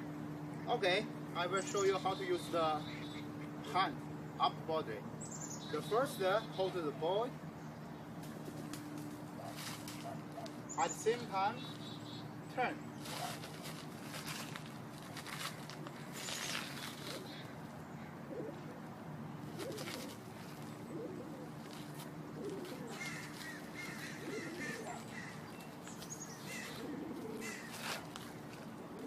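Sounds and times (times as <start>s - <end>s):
faint steady hum: 0.0s - 29.0s
small birds chirping: 0.4s - 29.0s
doves cooing: 1.2s - 4.3s, 8.3s - 14.6s, 15.2s - 29.0s.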